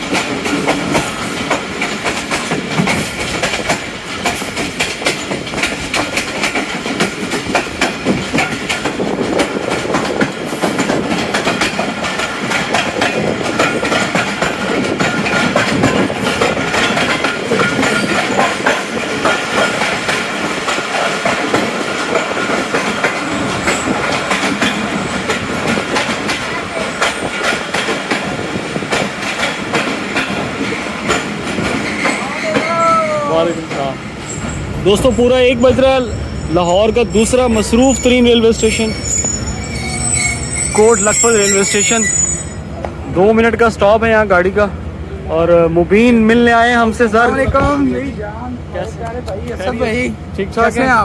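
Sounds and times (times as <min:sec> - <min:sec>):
train wheels clattering over rail joints: 0:00.0 - 0:32.8
rumble of train coaches: 0:00.0 - 0:51.0.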